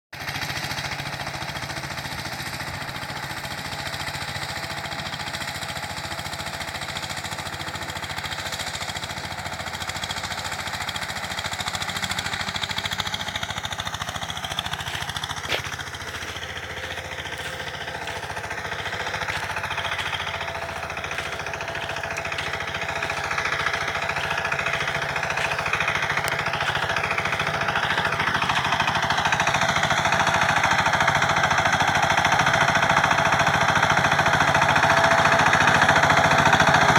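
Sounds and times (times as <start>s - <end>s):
tiller engine chugging: 0.2s - 36.9s.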